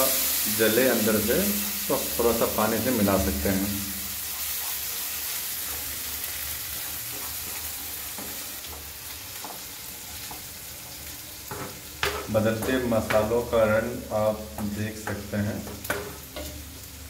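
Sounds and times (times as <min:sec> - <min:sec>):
masala sizzling in a wok: 0:00.0 - 0:17.0
wooden spatula scraping a pan: 0:04.2 - 0:10.5.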